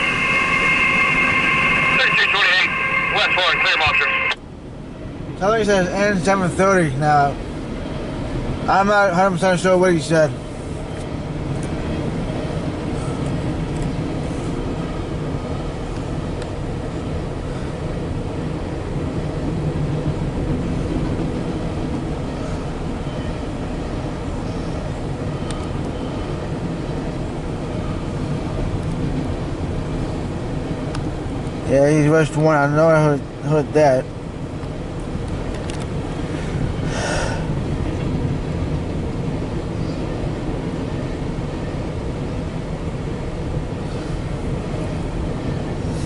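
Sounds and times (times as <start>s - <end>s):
train wheels rumbling on rail: 0.0s - 46.0s.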